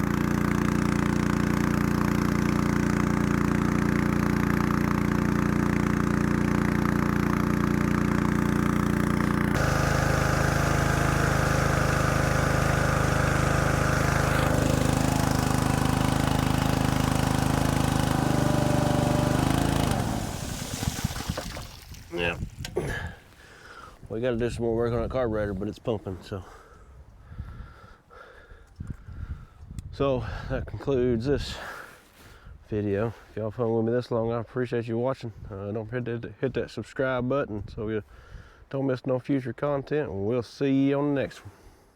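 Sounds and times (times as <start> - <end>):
engine spinning down: 0.0 - 21.7
water pump engine running: 0.0 - 23.1.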